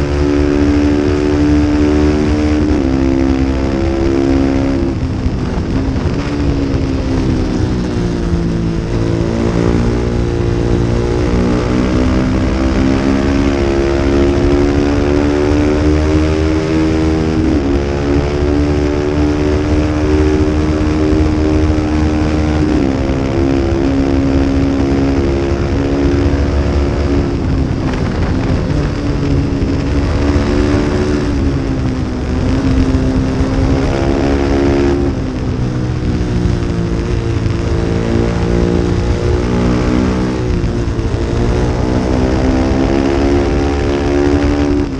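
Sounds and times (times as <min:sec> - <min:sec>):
low rush of wind: 0:00.0 - 0:44.9
racing motorcycle engine under load: 0:00.0 - 0:44.9.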